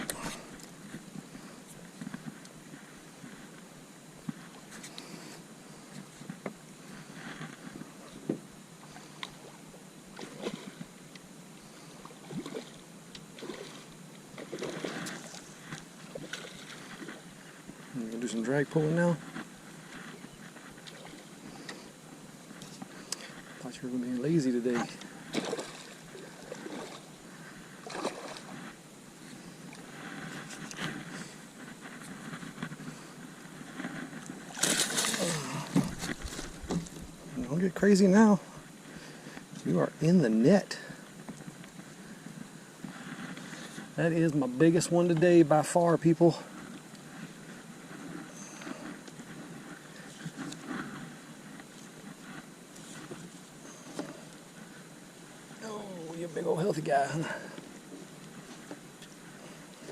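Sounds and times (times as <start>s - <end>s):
fish splashing and thrashing: 10.1s - 10.8s, 12.1s - 12.8s, 13.4s - 17.9s, 25.0s - 28.7s, 34.1s - 37.2s
splashes and knocks on boat: 34.5s - 36.9s.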